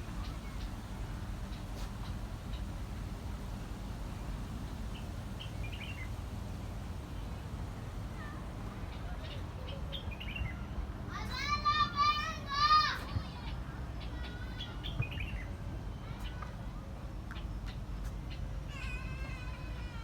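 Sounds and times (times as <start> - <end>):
low background rumble: 0.0 - 13.5.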